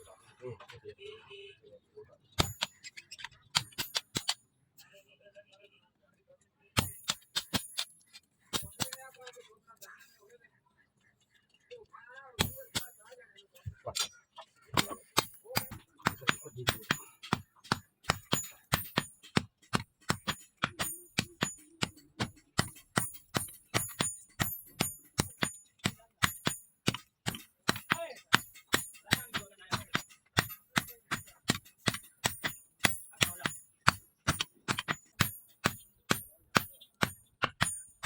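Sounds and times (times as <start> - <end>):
hammer striking steel on anvil: 2.4 - 4.4, 6.8 - 9.2, 12.4 - 13.1, 14.8 - 38.0.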